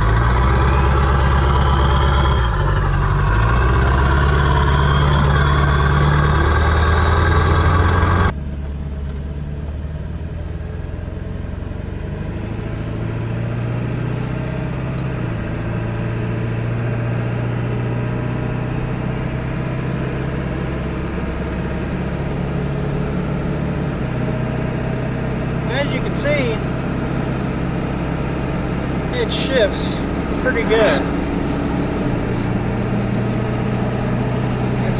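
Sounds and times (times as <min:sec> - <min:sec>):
diesel truck engine humming: 0:00.0 - 0:34.9
engine gear shift: 0:12.2 - 0:17.0.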